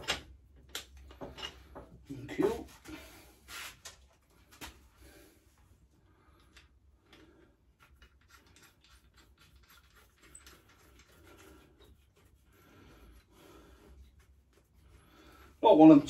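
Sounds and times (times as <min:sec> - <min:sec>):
small clicks and rubbing: 0:00.0 - 0:01.9, 0:06.4 - 0:12.4.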